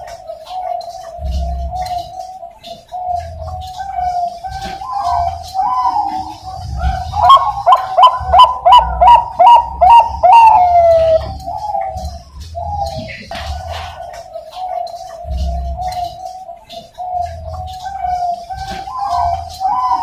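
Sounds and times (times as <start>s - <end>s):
doves cooing: 0.0s - 20.0s
loud clipped dove coos: 3.0s - 12.2s.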